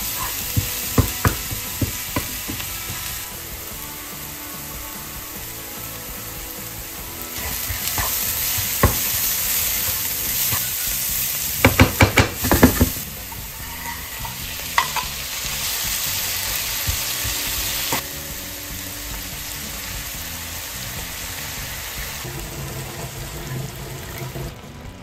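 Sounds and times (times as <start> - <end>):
vegetables sizzling in a frying pan: 0.0 - 25.0
spatula knocking against pan: 0.4 - 3.1, 7.6 - 9.3, 11.6 - 13.0.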